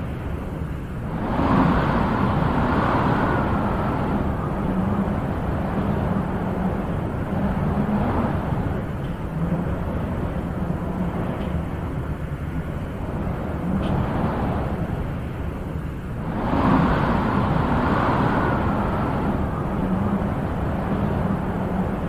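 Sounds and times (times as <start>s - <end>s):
wind blowing in gusts: 0.0s - 22.0s.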